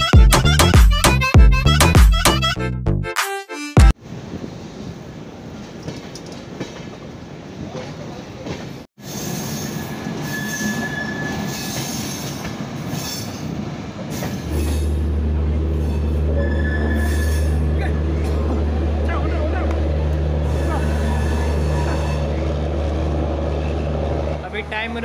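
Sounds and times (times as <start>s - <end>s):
train wheels rumbling and clacking: 4.5s - 25.0s
high wheel squeal: 9.0s - 15.0s, 15.7s - 17.8s, 20.4s - 22.6s.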